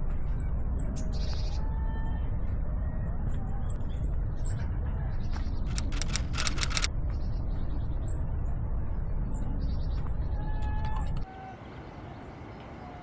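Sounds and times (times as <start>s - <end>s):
camera shutter clicks: 5.7s - 6.9s.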